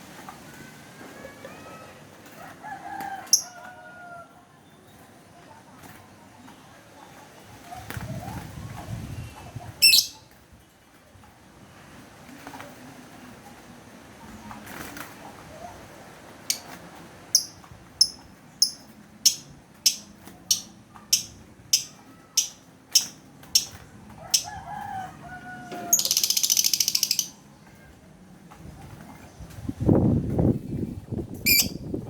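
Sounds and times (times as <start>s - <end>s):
bird chirping: 17.4s - 23.8s, 26.0s - 27.4s, 31.5s - 31.8s
high buzzing bird chatter: 17.4s - 23.8s, 25.9s - 27.4s
gliding crowing bird call: 24.3s - 27.3s.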